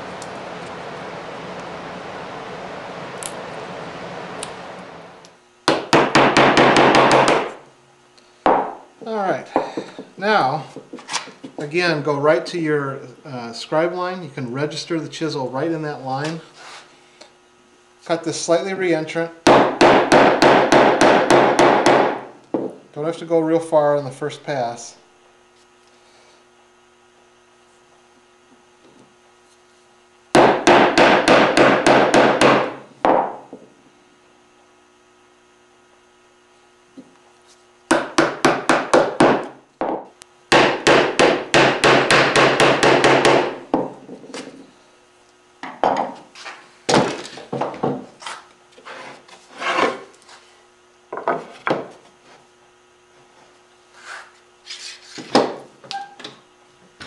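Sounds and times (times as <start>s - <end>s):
chisel scraping wood: 48.8s - 50.1s.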